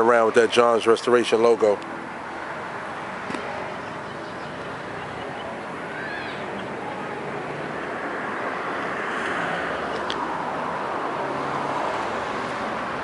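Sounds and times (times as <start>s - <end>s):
car passing: 1.3s - 13.0s.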